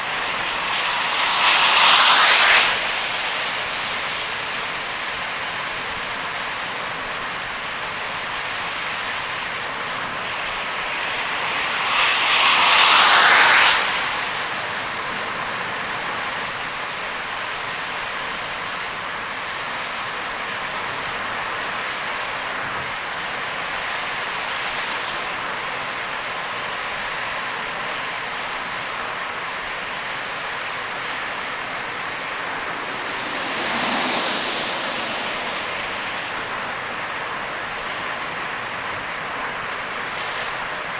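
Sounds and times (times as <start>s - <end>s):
tyres hissing on wet road: 0.0s - 40.9s
whoosh: 30.8s - 38.3s.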